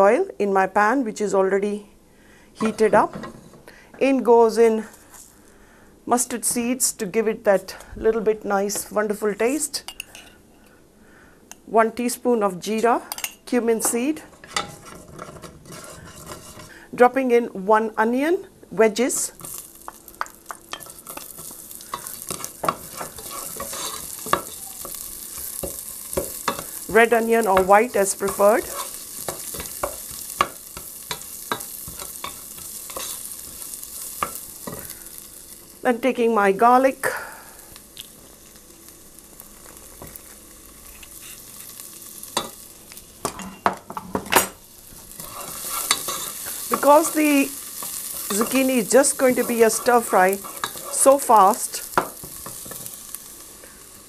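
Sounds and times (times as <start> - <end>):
onions sizzling in oil: 18.0 - 54.0.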